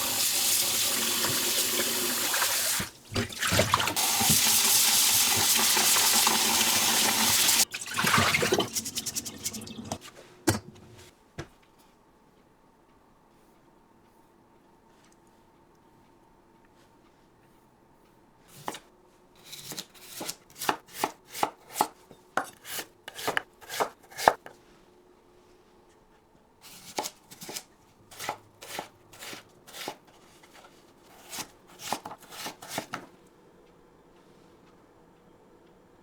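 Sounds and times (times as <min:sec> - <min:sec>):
knife chopping on cutting board: 0:19.5 - 0:24.6, 0:26.7 - 0:33.1.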